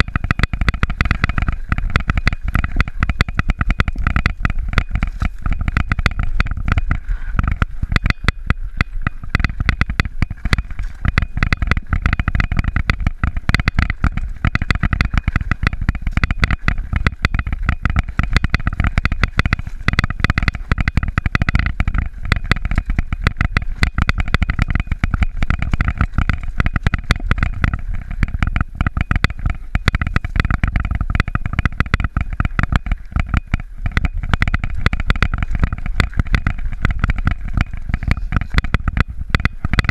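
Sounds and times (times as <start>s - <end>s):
bike rattling and clicking: 0.0s - 39.9s
bike rumbling over rough trail: 0.0s - 39.9s.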